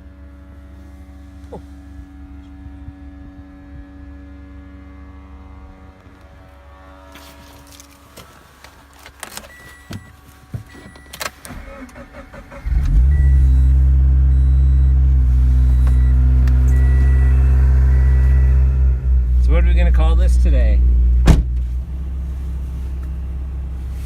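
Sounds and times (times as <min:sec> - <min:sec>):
car engine starting and idling: 0:00.0 - 0:24.0
car electronic chime: 0:09.3 - 0:19.2.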